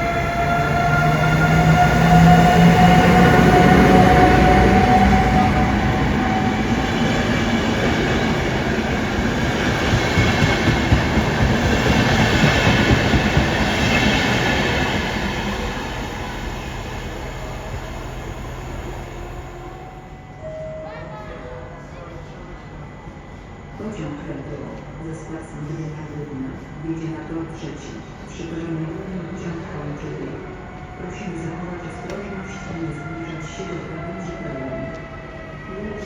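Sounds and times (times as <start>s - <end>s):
train wheels rumbling: 0.0s - 20.1s.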